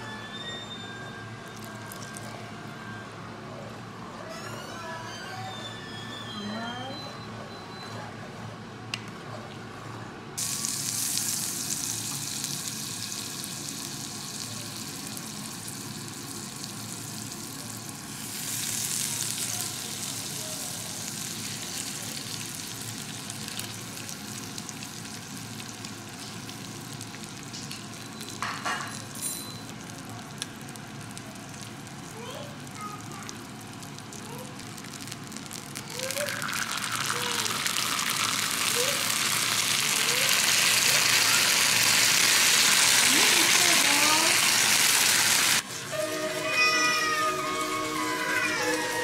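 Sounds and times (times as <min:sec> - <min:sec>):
chicken sizzling in butter: 0:10.4 - 0:49.0.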